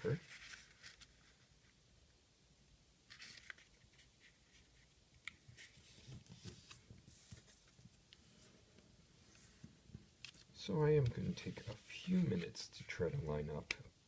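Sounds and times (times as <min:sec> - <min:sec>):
paper being folded and creased: 0:00.0 - 0:01.5, 0:03.1 - 0:07.8, 0:10.2 - 0:12.6.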